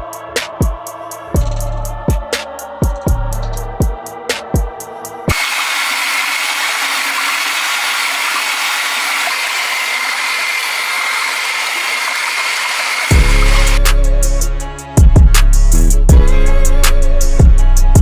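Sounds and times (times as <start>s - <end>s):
electric motor whine: 5.3s - 13.9s.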